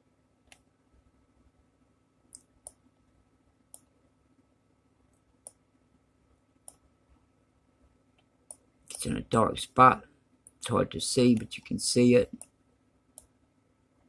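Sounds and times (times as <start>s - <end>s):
faint steady hum: 0.0s - 14.0s
computer mouse clicking: 3.7s - 3.9s, 6.6s - 6.8s.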